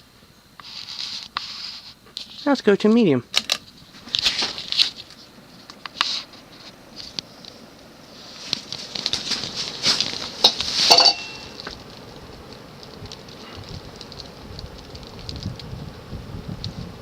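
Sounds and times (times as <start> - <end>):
ceiling fan air rushing: 0.0 - 17.0
light metallic clinks and rattles: 10.4 - 11.6.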